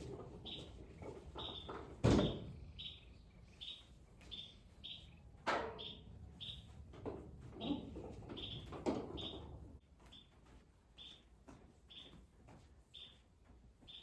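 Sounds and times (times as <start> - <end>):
loud knocks: 2.0 - 2.5.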